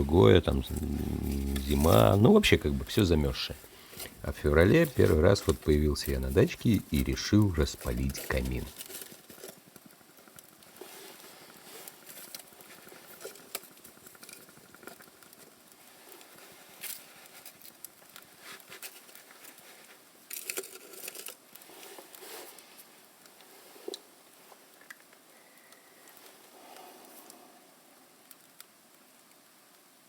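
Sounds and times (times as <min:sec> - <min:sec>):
paper rustling and crinkling: 0:00.1 - 0:09.8, 0:10.7 - 0:24.8.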